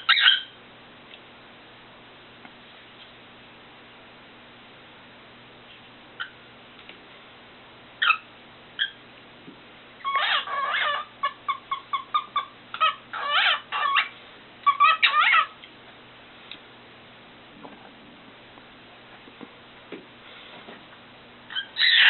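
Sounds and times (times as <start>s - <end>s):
cockatiel singing: 0.0s - 0.6s, 8.0s - 9.0s, 10.0s - 15.6s, 21.5s - 22.0s.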